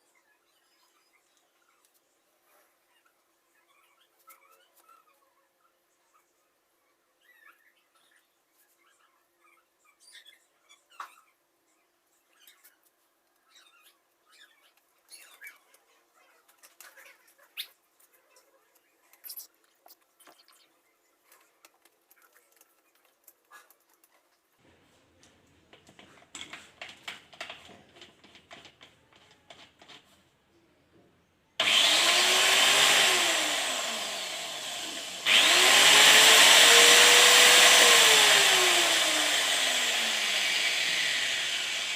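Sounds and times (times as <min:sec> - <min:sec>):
handling clicks and taps: 0:25.2 - 0:30.2
angle grinder whining: 0:31.6 - 0:41.9.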